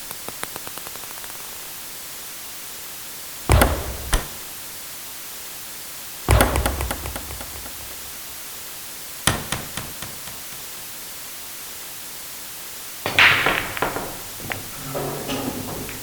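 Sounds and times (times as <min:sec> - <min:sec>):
billiard balls clacking: 0:03.5 - 0:04.4, 0:06.3 - 0:08.4, 0:09.3 - 0:10.7, 0:13.1 - 0:16.0
table tennis ball bouncing: 0:03.5 - 0:04.4, 0:06.3 - 0:08.4, 0:09.3 - 0:10.7, 0:13.1 - 0:14.7.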